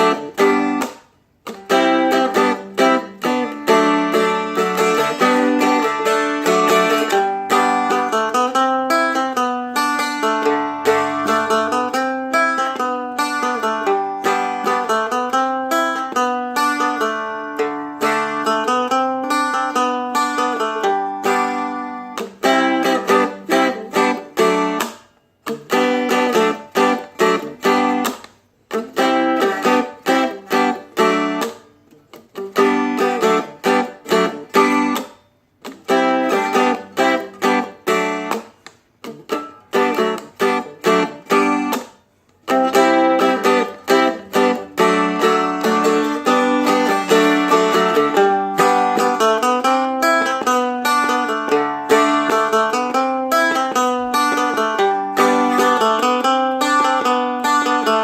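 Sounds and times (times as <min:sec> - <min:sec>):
strummed dulcimer chords: 0:01.6 - 0:25.0, 0:42.5 - 0:58.0.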